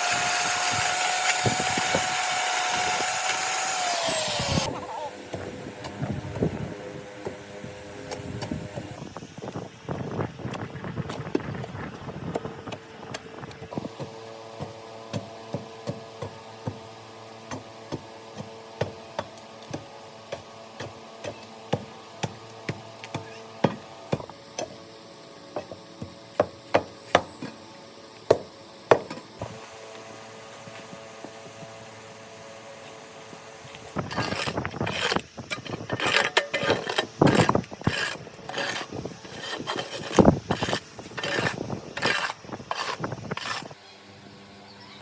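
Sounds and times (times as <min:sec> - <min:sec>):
steady hum: 0:23.8 - 0:44.7
tools striking wood: 0:28.3 - 0:29.5.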